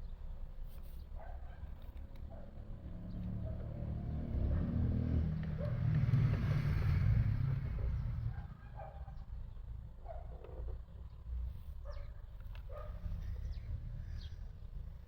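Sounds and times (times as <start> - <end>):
vehicle passing by: 2.4 - 9.0.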